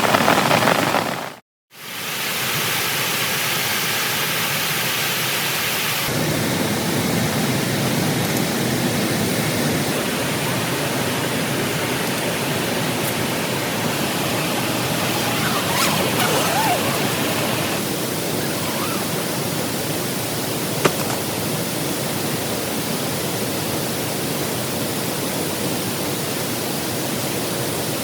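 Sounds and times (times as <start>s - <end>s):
heavy rain falling: 0.0s - 1.4s, 10.0s - 19.9s.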